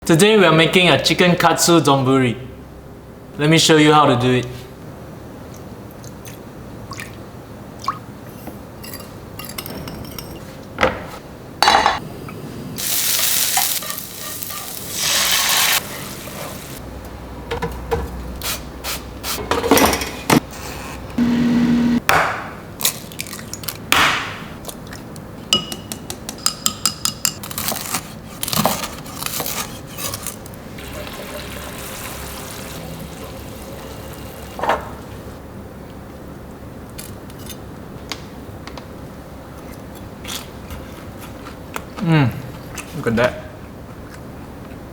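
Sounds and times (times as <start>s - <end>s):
food sizzling: 12.8s - 16.8s, 30.6s - 35.4s
utensils scraping on pans: 13.5s - 16.7s, 28.8s - 30.5s.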